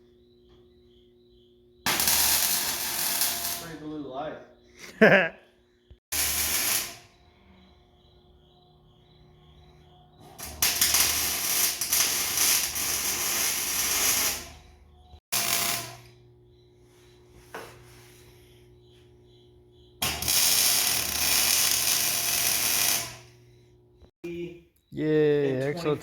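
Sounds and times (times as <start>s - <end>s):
welding arc crackling: 1.9s - 3.8s, 6.1s - 7.1s, 10.4s - 14.5s, 15.3s - 16.1s, 20.0s - 23.3s.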